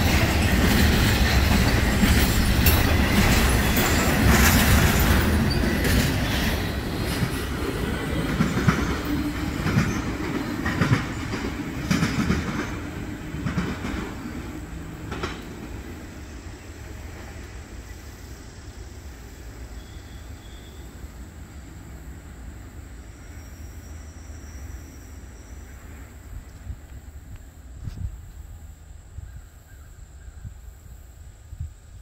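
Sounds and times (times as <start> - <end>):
train wheels clacking on rails: 0.0 - 18.0
train rumble: 0.0 - 32.0.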